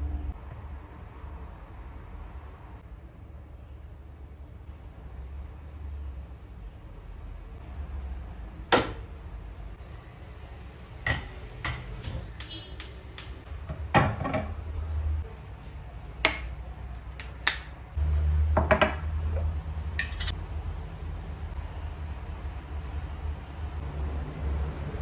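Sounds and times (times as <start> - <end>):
dishes and cutlery clinking: 13.2 - 14.8, 18.6 - 20.4.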